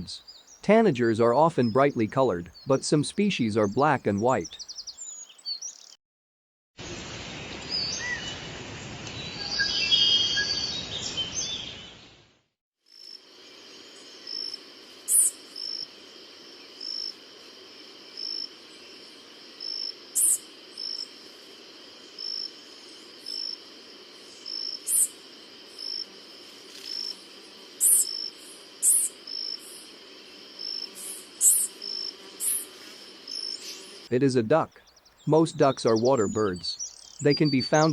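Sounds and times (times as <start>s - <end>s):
high bird notes: 0.0s - 4.7s, 34.1s - 37.9s
soft bird chirps: 0.0s - 6.0s, 33.3s - 37.9s.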